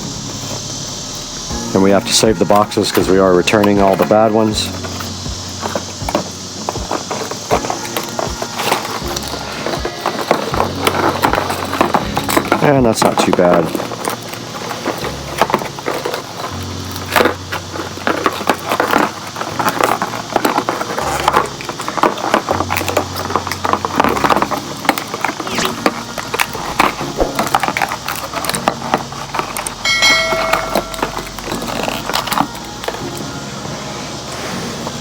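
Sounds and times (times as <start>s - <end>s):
packaging rustling and crinkling: 0.0s - 35.0s.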